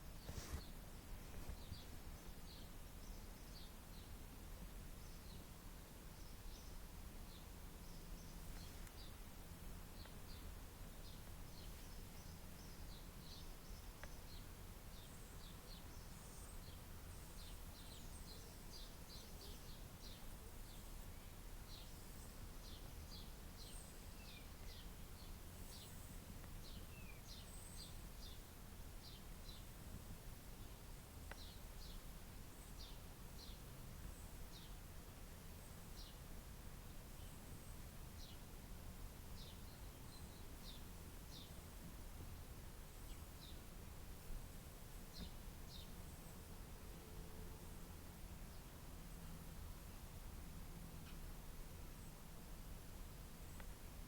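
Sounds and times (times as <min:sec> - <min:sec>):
faint birds chirping: 0:00.0 - 0:54.0.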